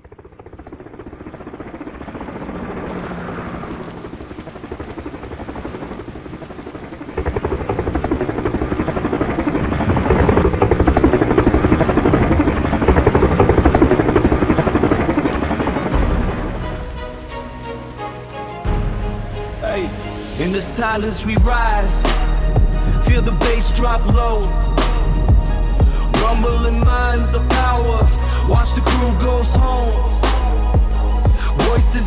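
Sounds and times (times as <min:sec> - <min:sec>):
helicopter rotor pulsing: 0:00.0 - 0:18.5.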